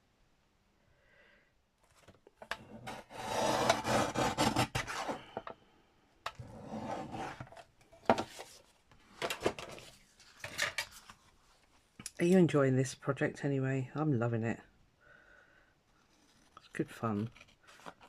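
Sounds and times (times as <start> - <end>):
blade rasping through card: 2.8 - 5.2.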